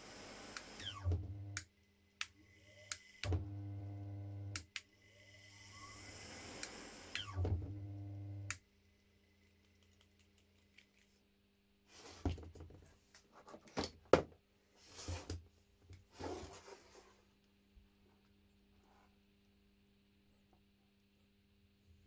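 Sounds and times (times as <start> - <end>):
electric motor humming and whirring: 0.0 - 1.7, 2.4 - 8.6.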